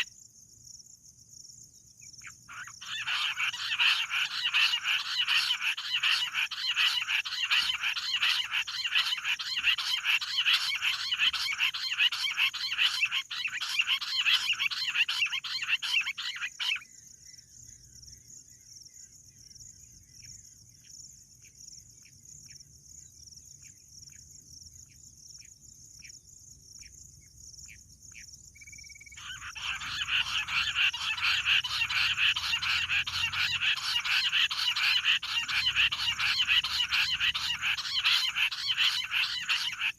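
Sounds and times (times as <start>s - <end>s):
quail chattering chorus: 2.2s - 16.8s, 29.2s - 39.9s.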